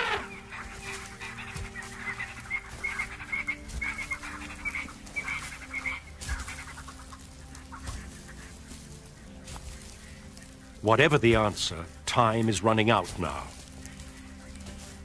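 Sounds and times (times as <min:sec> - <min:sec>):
birds calling short high notes: 0:00.0 - 0:11.9.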